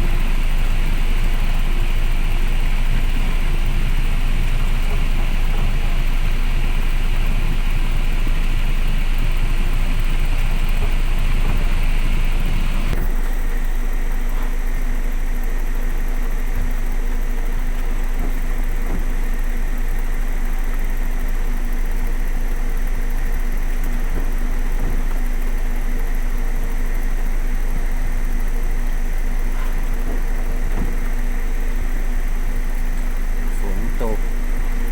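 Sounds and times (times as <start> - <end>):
mechanical hum: 0.0 - 34.9.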